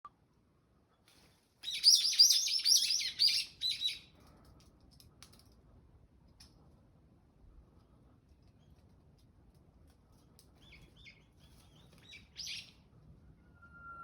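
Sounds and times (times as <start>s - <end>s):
bird singing high chirps: 1.7s - 4.0s, 10.6s - 12.8s.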